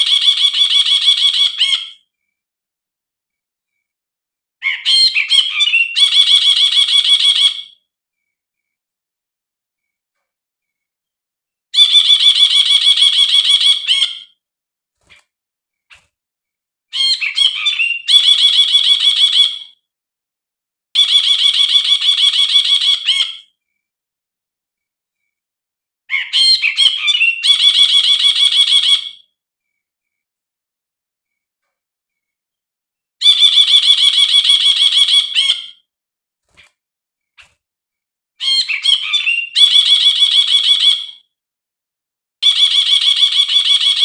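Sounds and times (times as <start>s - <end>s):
bird trilling: 0.0s - 2.0s, 4.6s - 7.8s, 11.8s - 14.4s, 16.9s - 19.8s, 21.0s - 23.5s, 26.1s - 29.3s, 33.2s - 35.8s, 38.4s - 41.2s.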